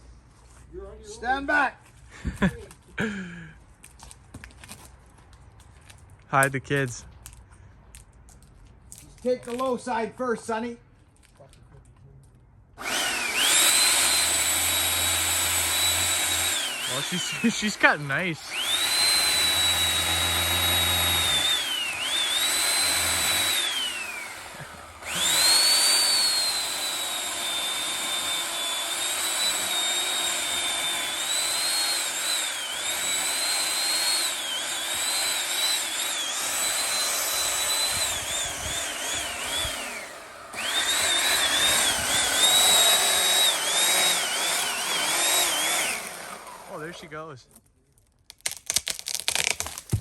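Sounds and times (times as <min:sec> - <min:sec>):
electric chainsaw cutting wood: 0:12.8 - 0:47.1, 0:48.4 - 0:50.0.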